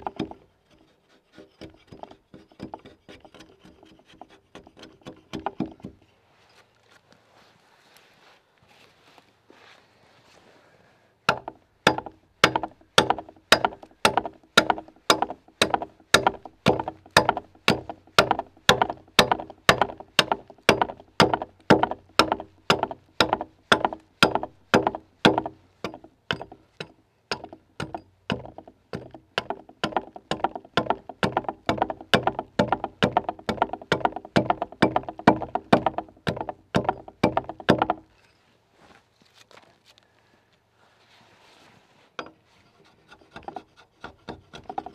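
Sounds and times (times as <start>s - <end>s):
axe chopping log: 11.3s - 26.6s, 27.3s - 38.1s.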